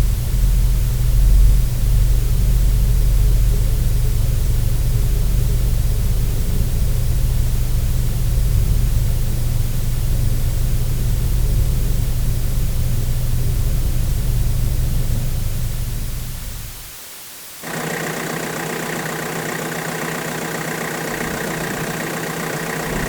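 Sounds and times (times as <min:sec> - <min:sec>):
car engine running: 0:17.6 - 0:23.0.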